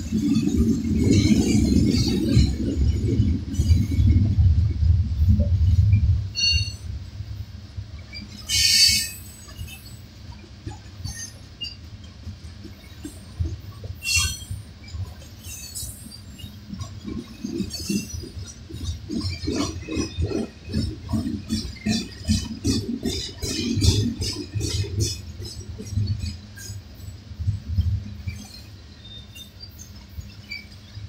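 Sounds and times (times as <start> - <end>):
train wheels rumbling on rails: 0.0 - 31.0
loud high wheel squeal: 6.3 - 6.9, 8.1 - 10.0, 14.0 - 14.6.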